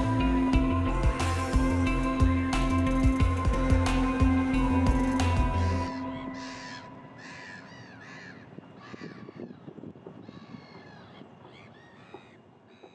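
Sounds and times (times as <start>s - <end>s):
birds giving harsh calls: 5.5s - 12.9s.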